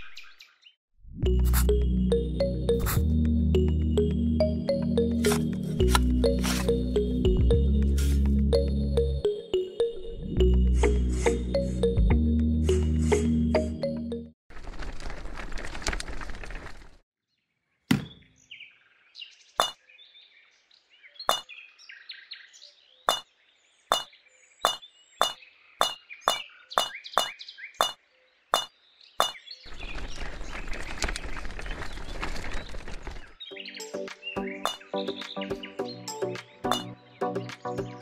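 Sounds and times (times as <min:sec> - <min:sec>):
wheelbarrow rasping through sand: 0:05.2 - 0:06.8, 0:07.9 - 0:08.3.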